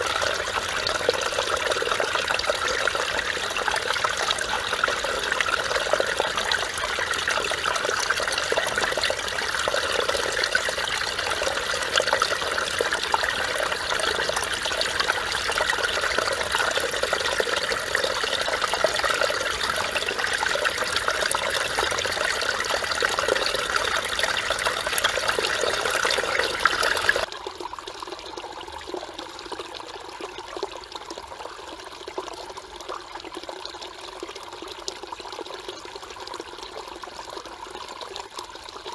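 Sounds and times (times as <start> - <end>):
stream rushing over rocks: 0.0 - 27.3.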